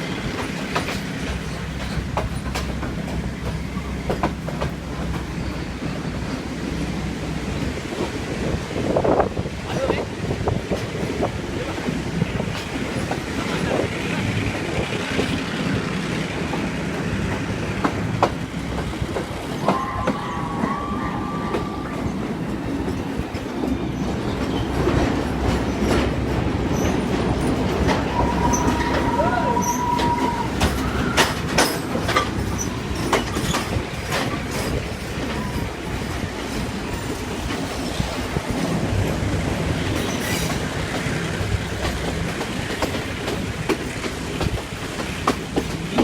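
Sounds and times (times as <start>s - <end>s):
diesel train rumbling: 0.0s - 46.0s
wheels clacking over rail joints: 0.0s - 46.0s
high wheel squeals: 19.5s - 22.3s, 26.7s - 38.2s.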